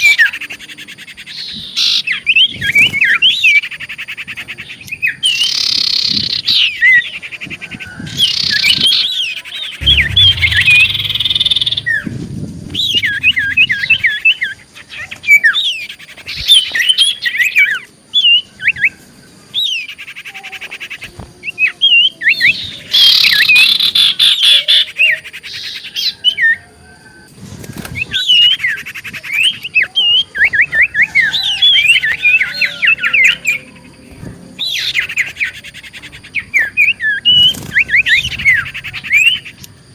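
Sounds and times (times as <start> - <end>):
low rumble: 9.8 - 14.7
bird singing: 9.8 - 17.4.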